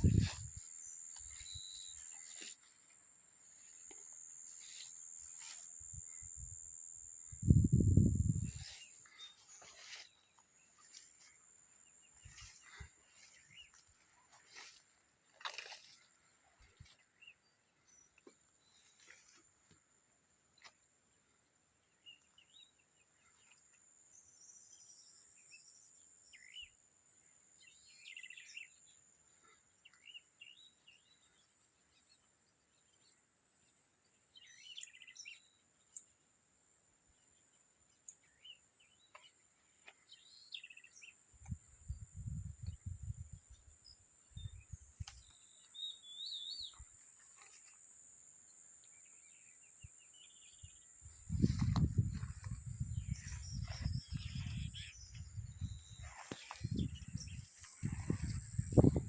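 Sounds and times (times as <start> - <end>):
birds chirping: 50.1 - 59.0.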